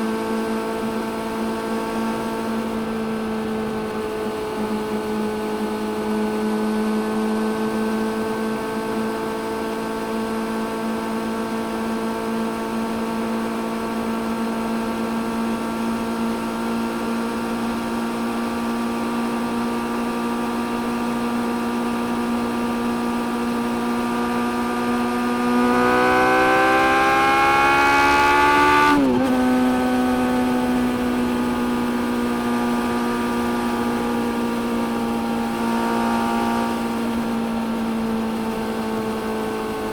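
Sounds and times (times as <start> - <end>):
motorcycle engine running and revving: 0.0 - 39.9.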